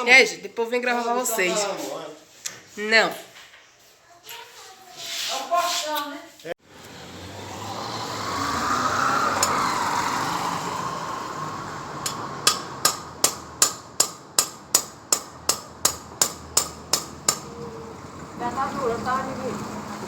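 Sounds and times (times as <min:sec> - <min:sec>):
rush of noise: 0:07.1 - 0:13.6
hammer blows ringing: 0:12.0 - 0:17.6.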